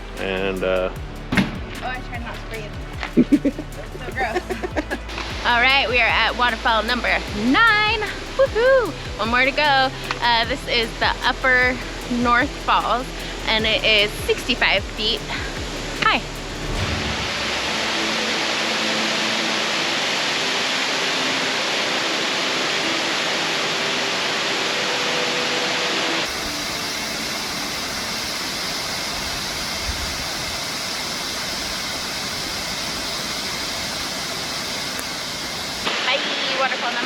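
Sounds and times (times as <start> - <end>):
waterfall rushing: 15.2 - 37.0.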